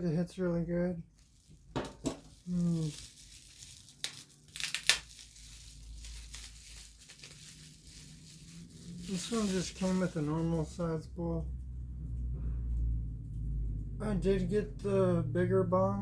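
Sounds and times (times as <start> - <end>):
plastic packaging crinkling: 1.1 - 10.9.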